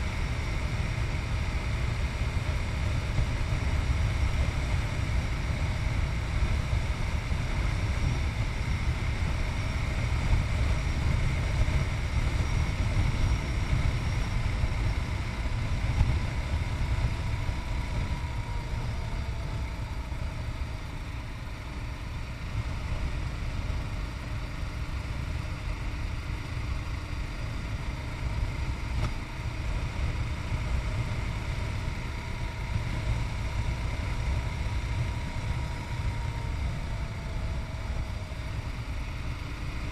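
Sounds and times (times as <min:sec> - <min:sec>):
wind rumble on microphone: 0:00.0 - 0:21.0
motorcycle engine running: 0:00.0 - 0:39.9.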